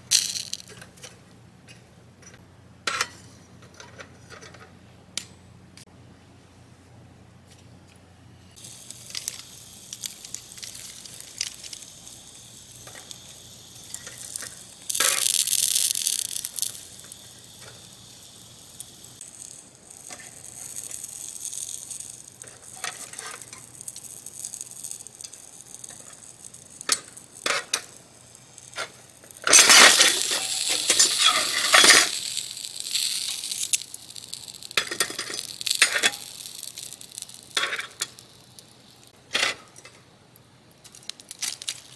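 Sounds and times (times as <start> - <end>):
food sizzling on griddle: 8.6 - 39.2
utensils clicking and clinking: 8.6 - 40.0.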